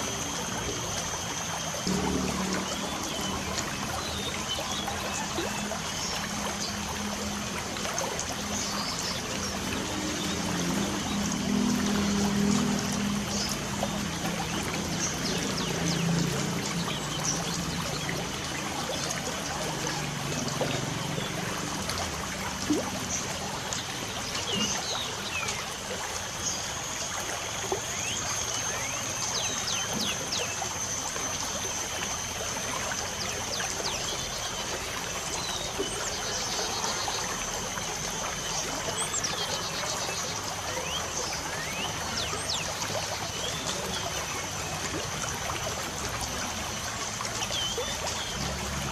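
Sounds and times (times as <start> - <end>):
light rain trickling: 0.0 - 48.9
steady high-pitched note: 1.9 - 5.0.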